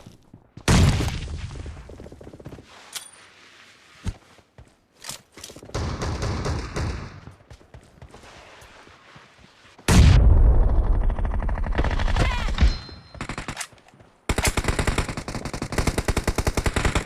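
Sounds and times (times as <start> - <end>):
rapid automatic gunfire: 14.3 - 17.0.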